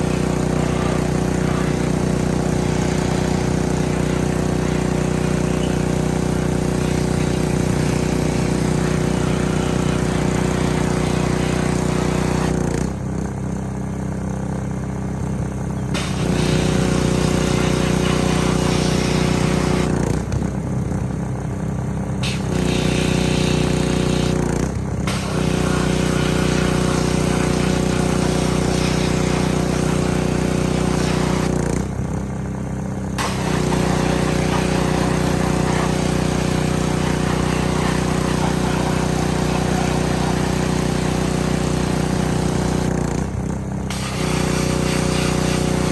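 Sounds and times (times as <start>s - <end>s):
spray wand hissing: 0.0s - 10.2s, 16.0s - 19.9s, 25.1s - 31.5s, 33.2s - 41.7s, 43.9s - 45.9s
pressure washer engine running: 0.0s - 45.9s.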